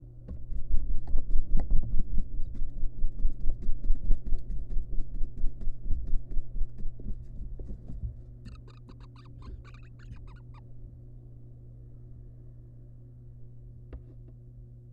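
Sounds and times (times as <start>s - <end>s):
owl chick flapping wings: 0.4s - 10.6s.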